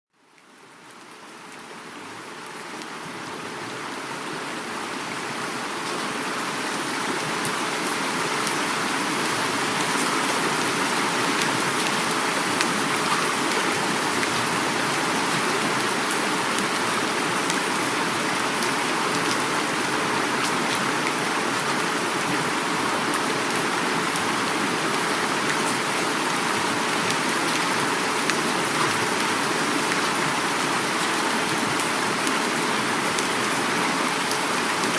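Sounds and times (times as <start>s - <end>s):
heavy rain: 0.1s - 34.9s
river flowing: 0.2s - 34.9s.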